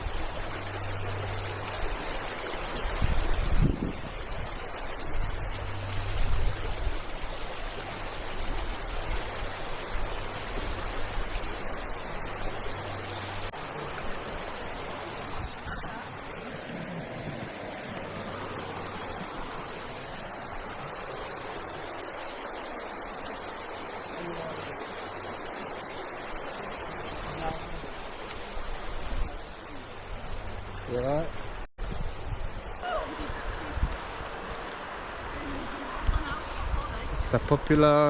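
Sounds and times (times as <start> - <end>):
wind rumble on microphone: 0.0 - 23.8, 25.2 - 37.8
water rushing over stones: 0.0 - 38.0.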